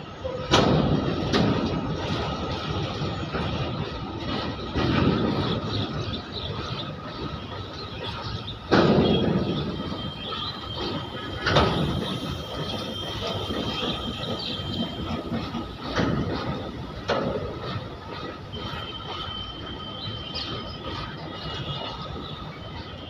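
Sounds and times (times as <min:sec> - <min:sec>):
goods wagons rumbling past: 0:00.0 - 0:23.0
high wheel squeal: 0:05.1 - 0:23.0.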